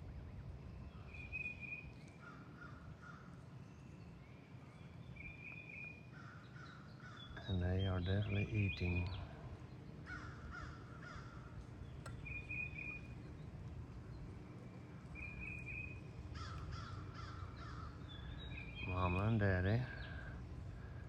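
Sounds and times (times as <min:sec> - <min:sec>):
harsh bird calls: 0:00.0 - 0:21.0
high bird chirps: 0:03.7 - 0:20.4.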